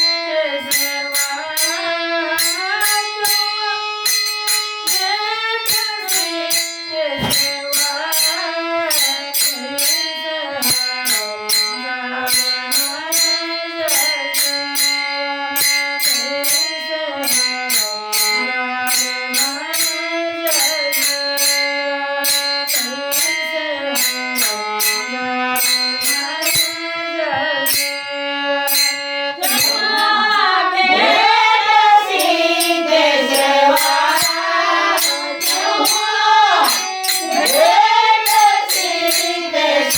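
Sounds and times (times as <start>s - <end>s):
sharp percussion strikes: 0.0s - 27.0s, 27.7s - 39.9s.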